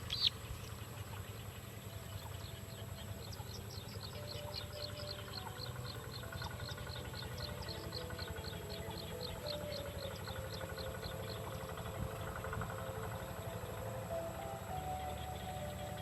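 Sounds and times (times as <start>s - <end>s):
small bird high-pitched chirps: 0.0s - 11.6s
steady low rumble: 0.0s - 16.0s.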